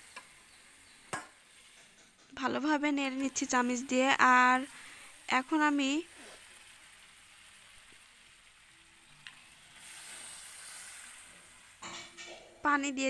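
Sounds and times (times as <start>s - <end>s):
meat sizzling in a pan: 0.0s - 13.0s
water poured into hot pan: 3.3s - 12.3s.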